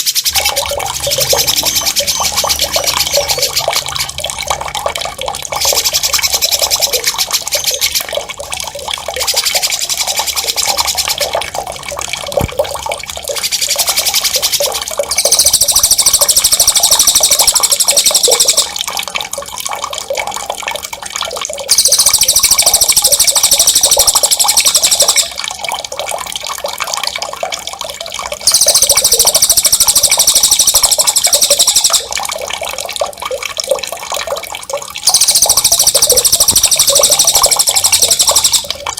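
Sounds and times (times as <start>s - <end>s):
running splashing water: 0.1s - 38.9s
songbird rolling trills: 15.1s - 18.7s, 21.7s - 25.3s, 28.5s - 32.1s, 35.1s - 38.7s.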